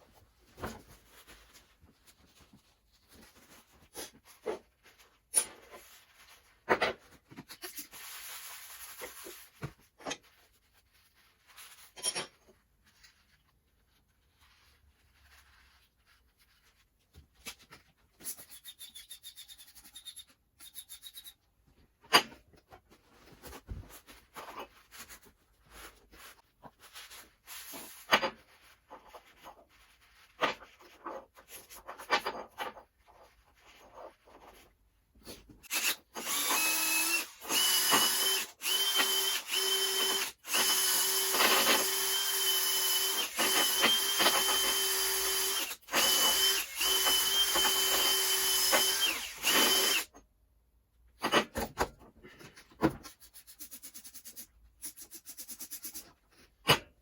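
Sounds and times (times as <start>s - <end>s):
rubbing or scraping: 0.0s - 21.5s.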